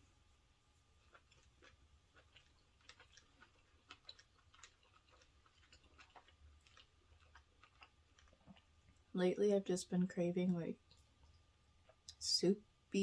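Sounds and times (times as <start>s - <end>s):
person chewing food: 1.0s - 9.1s.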